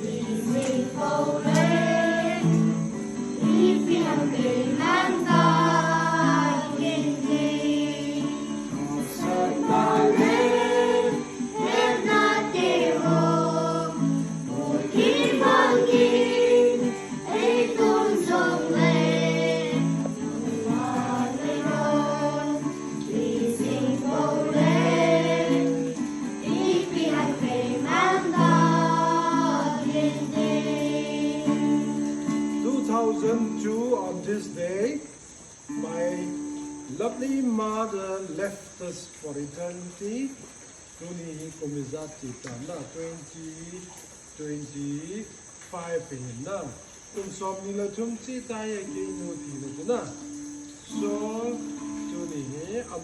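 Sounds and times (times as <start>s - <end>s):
group singing gospel song: 0.0s - 34.6s, 49.0s - 53.0s
guitar accompaniment: 0.0s - 35.0s, 35.6s - 38.1s, 48.6s - 53.0s.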